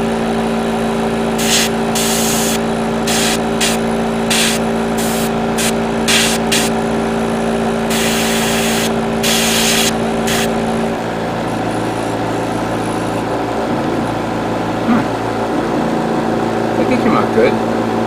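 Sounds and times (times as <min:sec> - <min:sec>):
compressor motor hum: 0:00.0 - 0:18.0
airbrush spray hisses: 0:01.4 - 0:06.7, 0:07.9 - 0:10.6.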